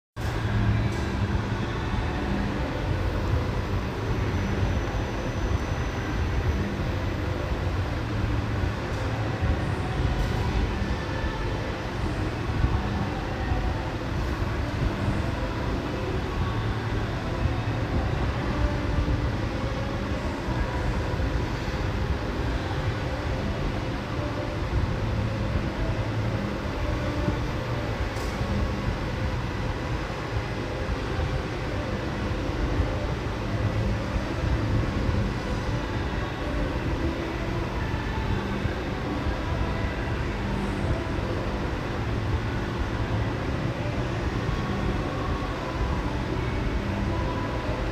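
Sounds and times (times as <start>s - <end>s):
large fan running: 0.2s - 47.9s.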